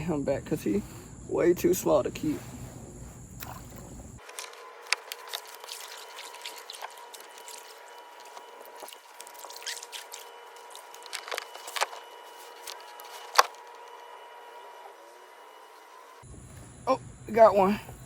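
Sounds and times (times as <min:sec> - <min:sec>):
water dripping and splashing: 0:03.0 - 0:12.0.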